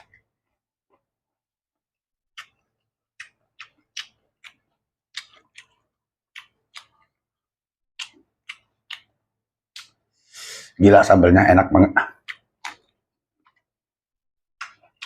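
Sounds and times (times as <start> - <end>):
person chewing corn: 0.0 - 1.1, 2.3 - 10.8, 12.1 - 13.8, 14.6 - 15.0.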